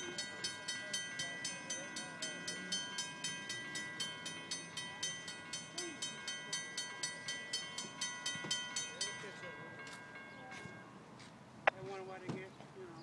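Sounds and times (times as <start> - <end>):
faint steady ringing: 0.0 - 12.2.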